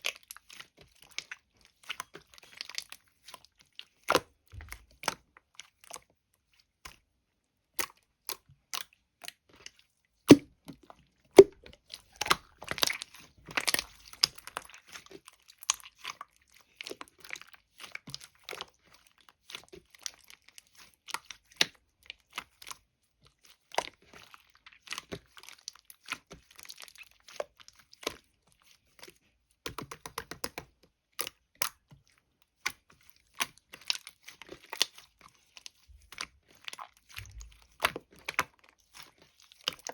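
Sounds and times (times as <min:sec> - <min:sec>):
jelly crackling and crunching: 0:11.4 - 0:30.6, 0:31.2 - 0:39.9.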